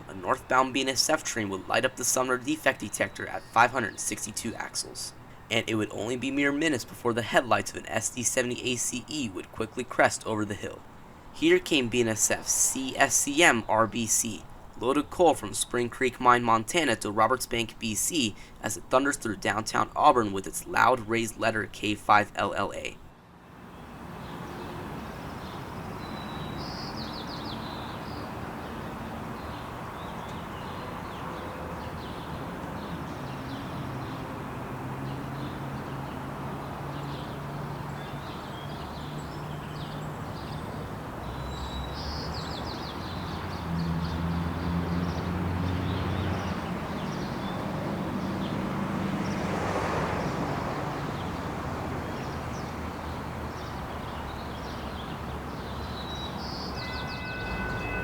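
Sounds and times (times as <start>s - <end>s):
birds chirping: 0.0s - 58.0s
train locomotive engine drone: 56.8s - 58.0s.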